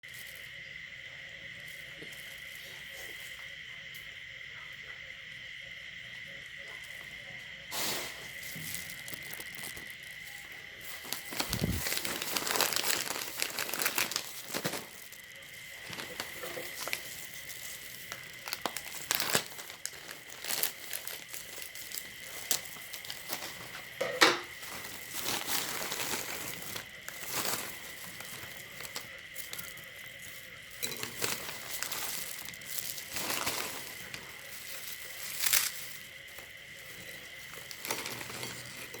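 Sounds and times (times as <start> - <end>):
high-pitched whine: 0.1 - 39.0
plastic wrapper crinkling: 7.8 - 39.0.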